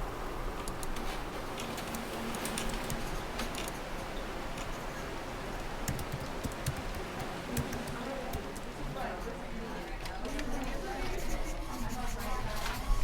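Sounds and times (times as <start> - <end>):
office background hum: 0.0 - 13.0
keyboard typing: 5.9 - 8.4.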